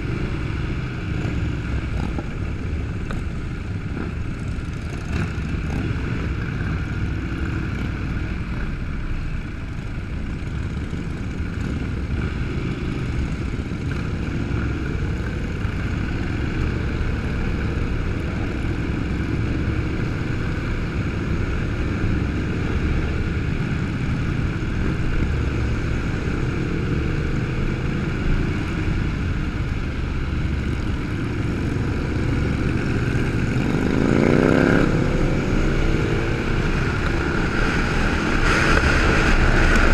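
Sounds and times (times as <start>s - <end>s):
motorcycle engines rumbling: 0.0s - 39.9s
engine revving: 31.4s - 39.9s.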